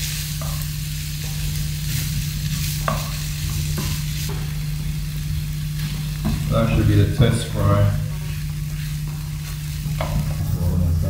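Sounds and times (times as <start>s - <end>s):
oil sizzling in a pan: 0.0s - 11.0s
steady low hum: 0.0s - 11.0s
utensils tapping and scraping pans: 0.4s - 4.5s, 8.1s - 10.9s.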